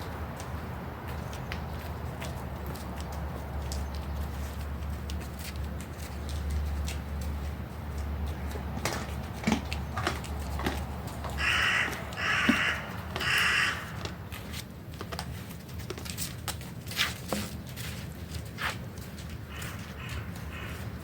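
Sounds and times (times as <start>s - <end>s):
crow cawing: 11.4s - 14.2s, 19.5s - 20.9s.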